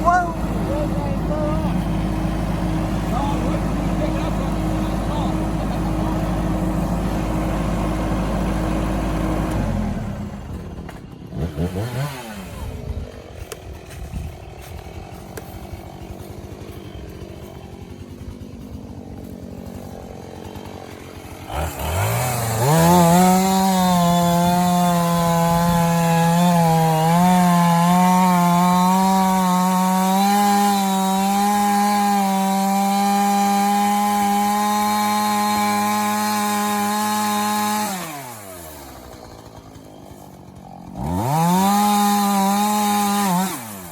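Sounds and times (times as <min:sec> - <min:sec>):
tractor diesel engine running: 0:00.0 - 0:11.6, 0:12.4 - 0:28.0, 0:34.1 - 0:43.0
chainsaw cutting log: 0:00.0 - 0:43.9.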